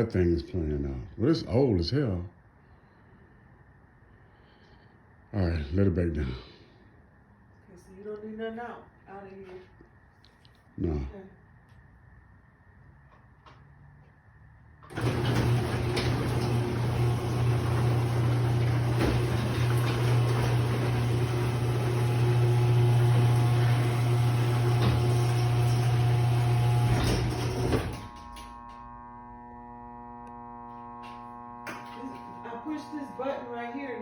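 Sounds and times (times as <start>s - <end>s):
garage door opener humming: 14.8s - 33.6s.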